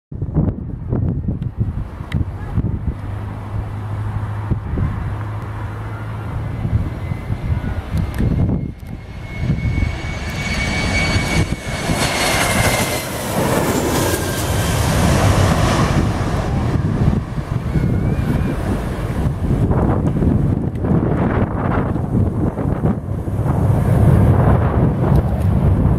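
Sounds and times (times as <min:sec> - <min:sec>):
wind buffeting microphone: 0:00.1 - 0:25.9
jet engines rumble and whine: 0:00.2 - 0:25.9.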